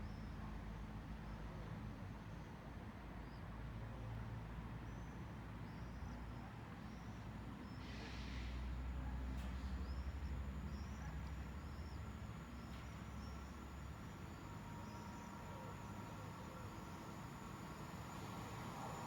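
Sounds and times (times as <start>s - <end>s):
electric train rumble: 10.1s - 19.0s.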